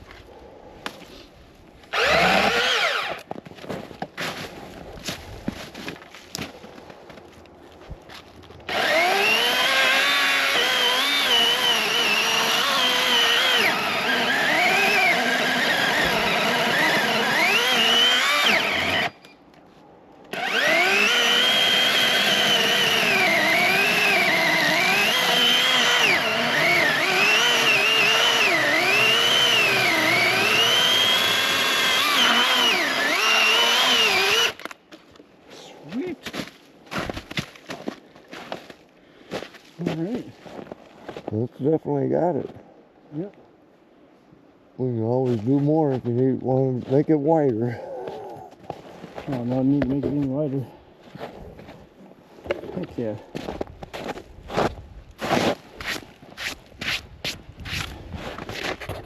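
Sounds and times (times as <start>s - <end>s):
electric chainsaw cutting wood: 1.9s - 3.3s, 8.7s - 19.2s, 20.3s - 34.7s.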